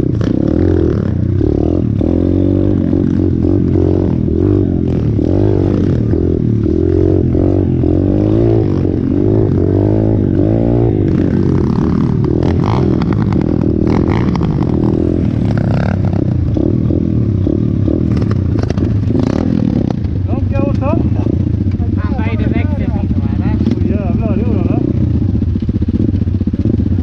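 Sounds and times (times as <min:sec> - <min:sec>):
motorcycle engine revving: 0:00.0 - 0:27.0
bike rattling and knocking: 0:11.0 - 0:27.0.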